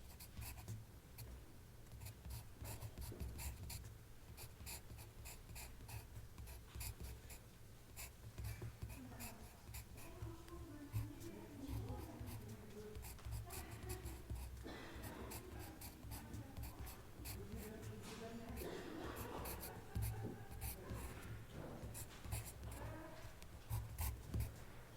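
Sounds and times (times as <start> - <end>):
pen writing on paper: 0.0 - 1.3, 1.9 - 24.6
hushed voices murmuring: 8.0 - 24.9.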